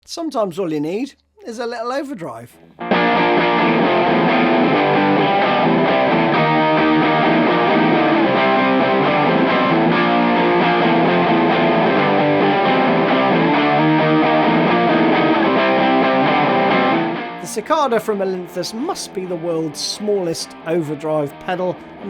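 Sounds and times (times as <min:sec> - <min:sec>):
distorted electric guitar playing: 0:02.7 - 0:22.0.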